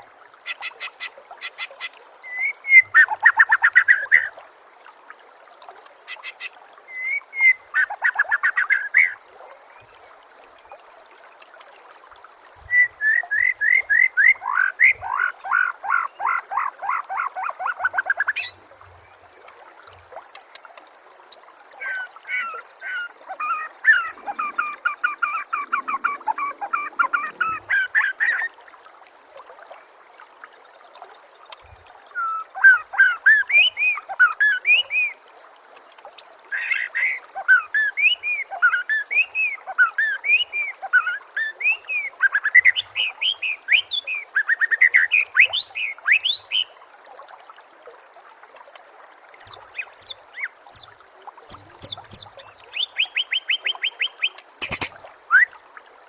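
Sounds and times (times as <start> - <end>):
bird singing whistled phrases: 12.7 - 15.0, 49.4 - 55.5.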